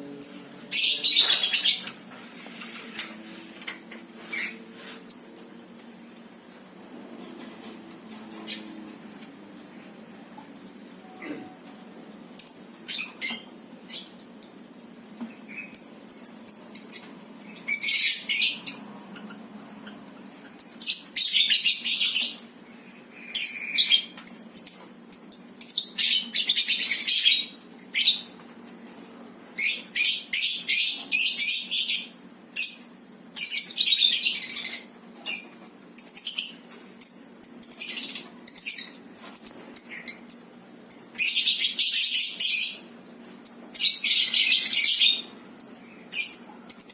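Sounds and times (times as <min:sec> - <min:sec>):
lovebirds chirping: 0:00.1 - 0:02.8, 0:15.2 - 0:28.4, 0:29.6 - 0:46.9.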